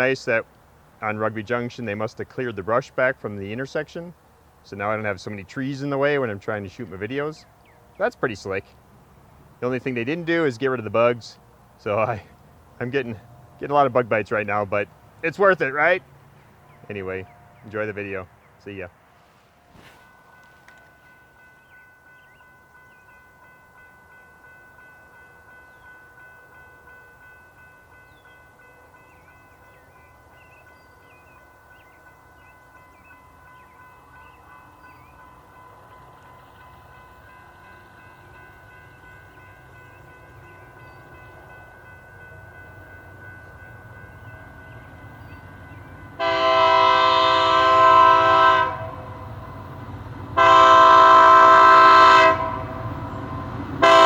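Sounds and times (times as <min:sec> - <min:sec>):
freight train rumbling: 0:00.0 - 0:54.0
locomotive horn blast: 0:46.2 - 0:49.7, 0:50.3 - 0:54.0.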